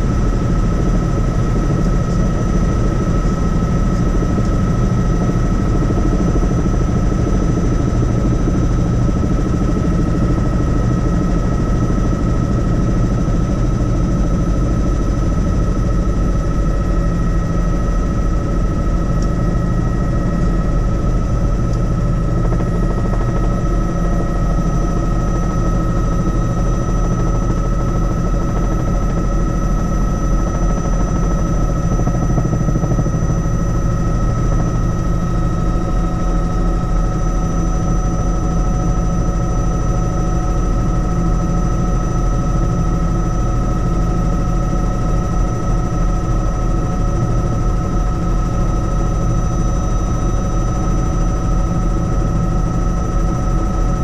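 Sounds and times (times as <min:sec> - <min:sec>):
helicopter rotor and engine: 0:00.0 - 0:54.0.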